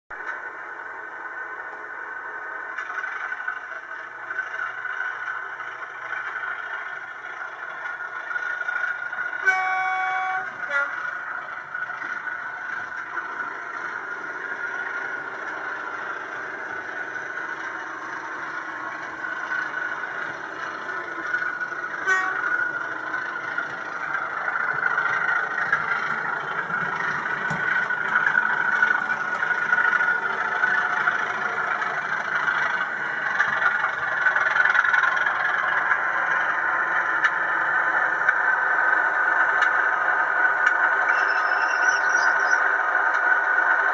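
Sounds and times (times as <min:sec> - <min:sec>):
model diesel engine sound: 0:00.1 - 0:43.9
model train running noise: 0:00.2 - 0:43.9
locomotive horn: 0:09.2 - 0:11.4, 0:21.7 - 0:23.4.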